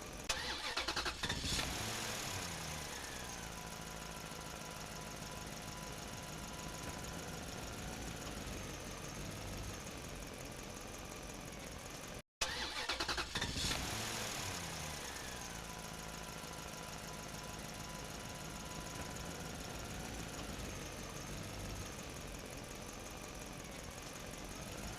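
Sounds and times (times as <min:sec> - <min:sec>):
small engine droning: 0:00.0 - 0:24.9.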